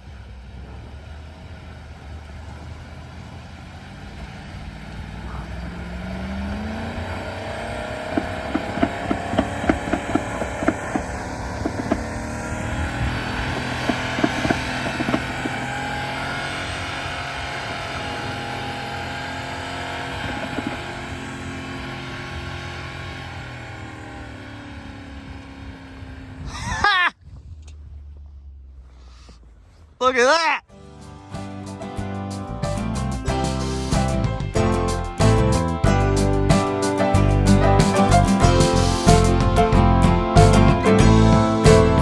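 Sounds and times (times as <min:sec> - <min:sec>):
boat motor running: 0:00.0 - 0:26.5, 0:32.8 - 0:42.0
sharp knocks: 0:08.0 - 0:12.4.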